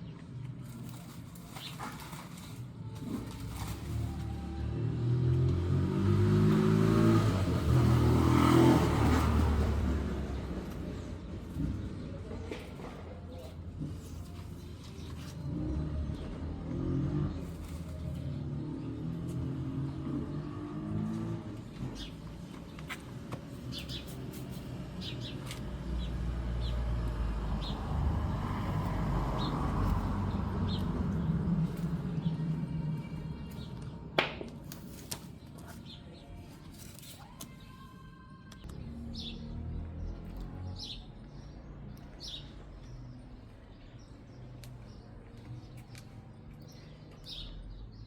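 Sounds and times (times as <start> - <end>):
birds chirping: 6.8 - 48.0.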